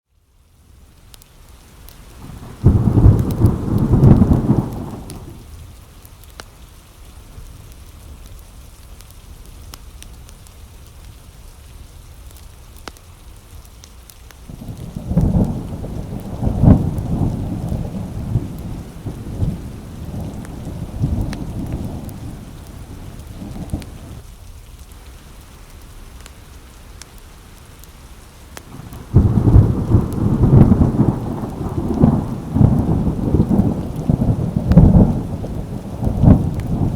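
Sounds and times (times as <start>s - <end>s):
steady rain: 0.1s - 36.9s
thunder rolling: 2.2s - 5.4s, 14.5s - 24.2s, 28.7s - 36.9s.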